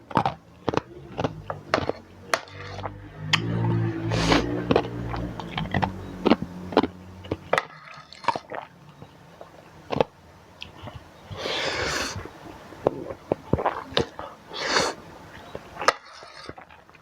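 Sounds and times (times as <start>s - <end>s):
chewing noodles: 4.0s - 8.8s.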